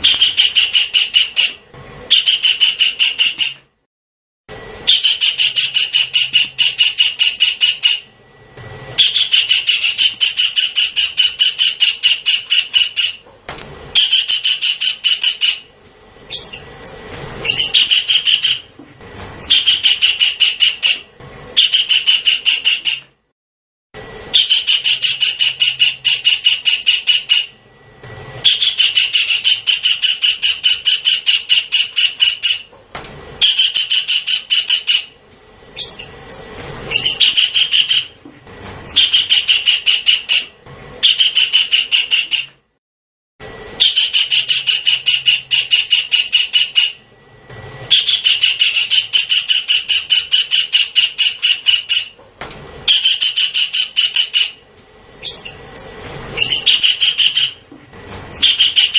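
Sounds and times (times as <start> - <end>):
kingfisher calling: 0.0 - 3.6, 4.9 - 8.1, 9.0 - 13.2, 14.0 - 15.7, 16.3 - 18.7, 19.4 - 23.0, 24.3 - 27.6, 28.4 - 32.7, 33.4 - 35.2, 35.8 - 38.2, 38.8 - 42.5, 43.8 - 47.0, 47.9 - 52.2, 52.9 - 54.6, 55.2 - 57.6, 58.3 - 58.9.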